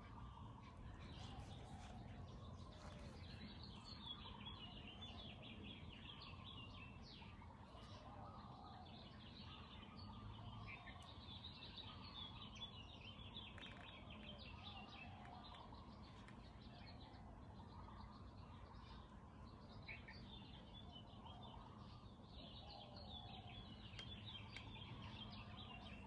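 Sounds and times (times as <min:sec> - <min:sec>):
low steady background rumble: 0:00.0 - 0:26.0
songbirds twittering and chirping: 0:00.0 - 0:26.0.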